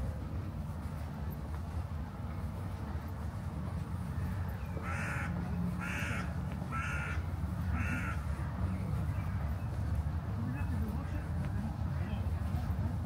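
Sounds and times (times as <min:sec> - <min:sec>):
bird cawing: 0:04.8 - 0:08.3.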